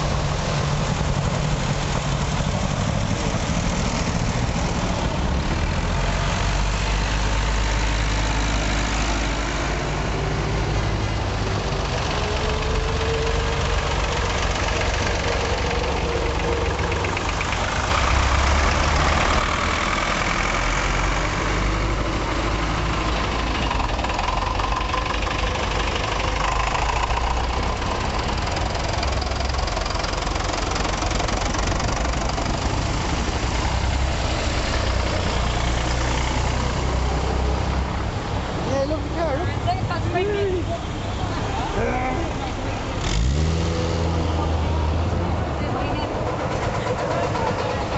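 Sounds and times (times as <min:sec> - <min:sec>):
tractor engines running: 0:00.0 - 0:47.9.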